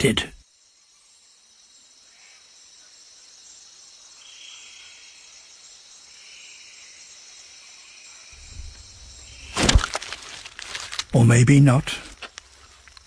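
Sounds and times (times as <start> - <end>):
crickets chirring: 0.0 - 13.0
low rumble: 8.4 - 9.6.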